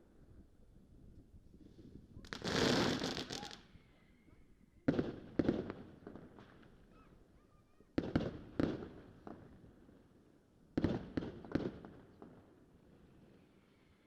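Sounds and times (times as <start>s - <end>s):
fireworks bangs: 2.3s - 3.6s.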